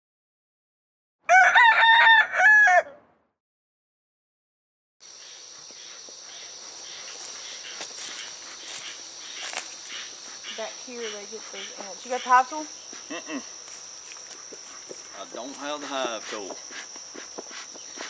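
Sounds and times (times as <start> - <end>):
rooster crowing: 1.3 - 3.0.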